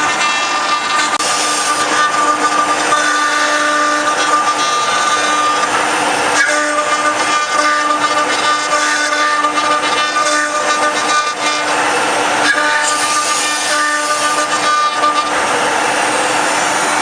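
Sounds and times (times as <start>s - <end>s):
rasping cutting noise: 0.0s - 15.8s
router spindle whine: 0.0s - 17.0s
steady rushing noise: 15.2s - 17.0s.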